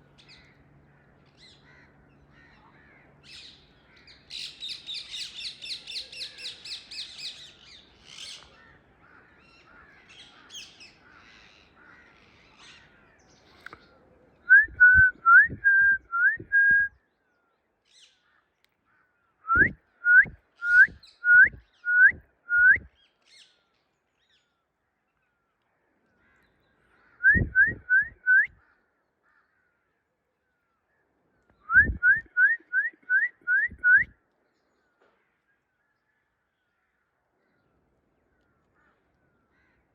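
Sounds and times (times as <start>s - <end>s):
upswept bird whistles: 14.5s - 17.0s, 19.5s - 22.9s, 27.2s - 28.6s, 31.6s - 34.1s.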